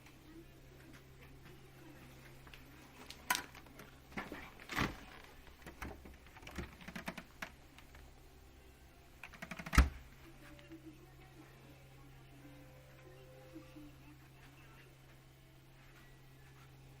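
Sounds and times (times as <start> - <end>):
clicks and knocks of objects handled: 2.4 - 8.0.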